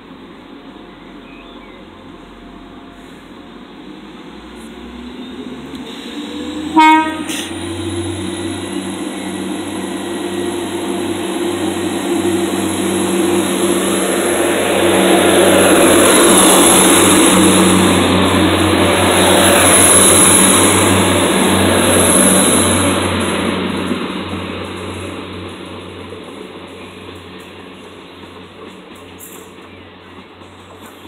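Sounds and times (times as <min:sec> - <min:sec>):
diesel train passing: 0:00.0 - 0:31.0
train horn blast: 0:06.7 - 0:07.5.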